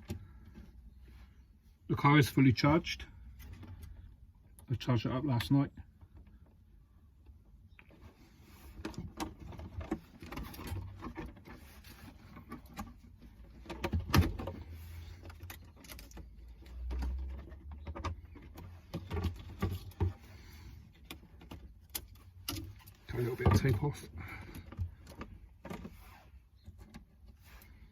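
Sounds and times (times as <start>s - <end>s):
hands handling plastic parts: 7.3s - 27.9s.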